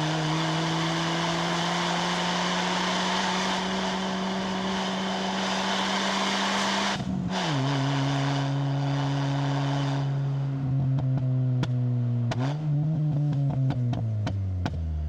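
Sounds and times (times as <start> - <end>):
car engine droning under load: 0.0 - 15.0.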